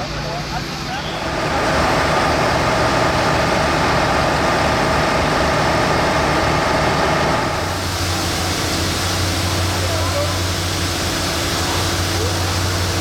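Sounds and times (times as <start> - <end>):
diesel engine running: 0.2 - 13.0.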